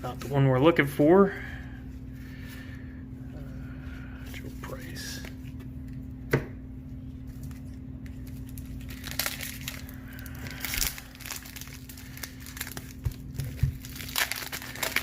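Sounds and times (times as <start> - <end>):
paper packs tearing and crinkling: 7.4 - 15.0.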